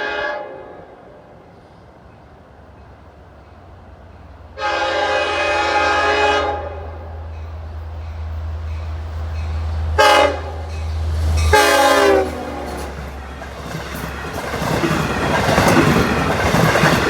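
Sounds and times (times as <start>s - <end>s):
train horn blasts: 0.0s - 1.1s, 4.6s - 7.3s, 9.4s - 12.9s
train cars rushing and clattering: 1.5s - 17.0s.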